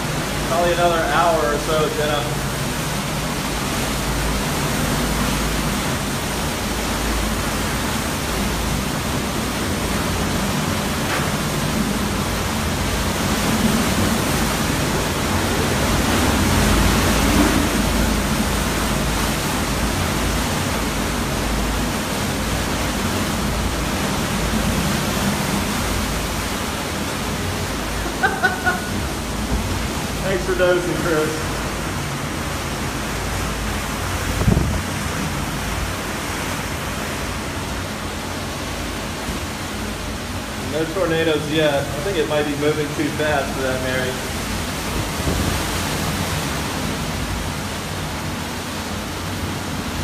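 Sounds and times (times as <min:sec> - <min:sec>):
hurricane-force wind blowing: 0:00.0 - 0:50.0.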